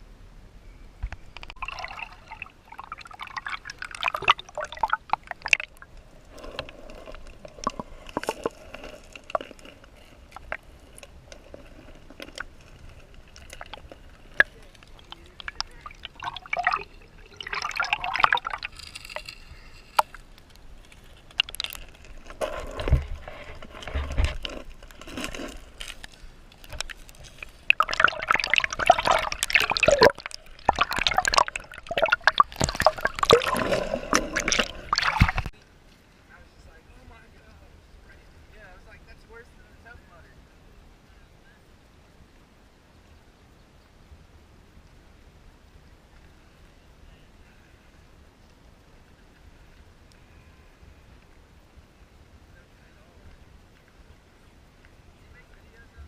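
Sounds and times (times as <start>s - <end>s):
paddle splashing in water: 21.0s - 35.6s.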